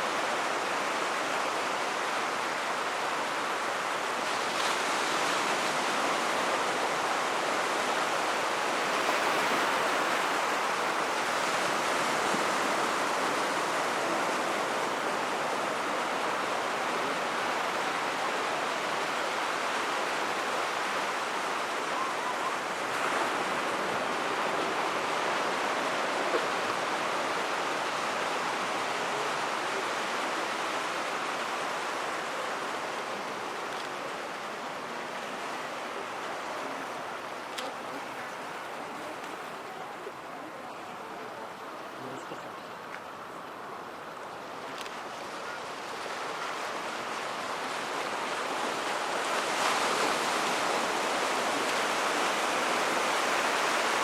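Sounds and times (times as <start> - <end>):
surf on a beach: 0.0 - 54.0.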